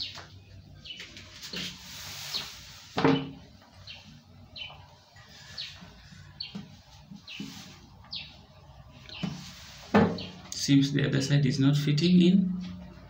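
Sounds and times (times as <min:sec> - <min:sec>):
small bird chirping: 0:02.2 - 0:10.5.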